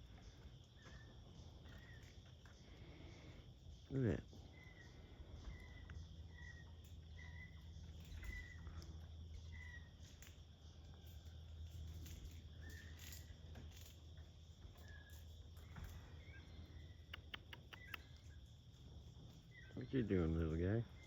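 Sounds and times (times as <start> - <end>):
high insect drone: 0.0 - 21.0
faint clicks: 17.0 - 18.4.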